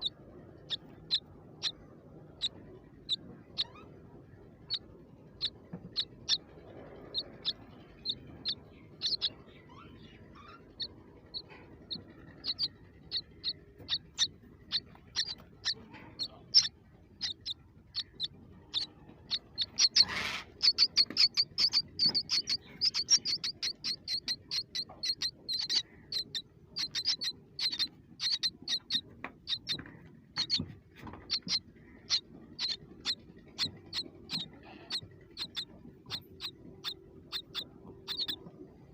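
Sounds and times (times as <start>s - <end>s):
baby birds cheeping: 0.0s - 38.9s.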